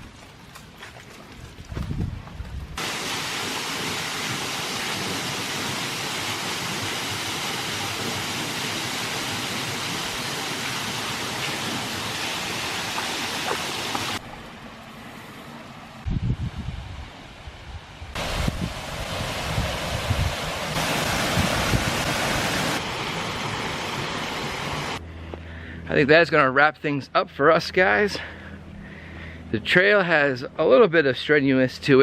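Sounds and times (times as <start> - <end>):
waterfall rushing: 2.8 - 14.2, 18.2 - 25.0.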